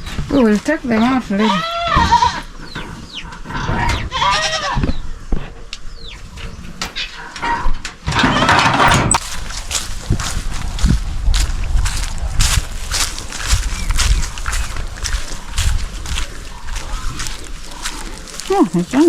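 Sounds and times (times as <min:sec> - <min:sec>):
goat bleating: 0:01.4 - 0:02.5, 0:04.0 - 0:04.8.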